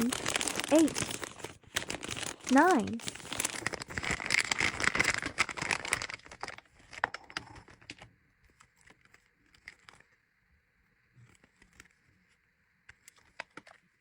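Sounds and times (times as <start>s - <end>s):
packaging bags crinkling: 0.0s - 8.0s.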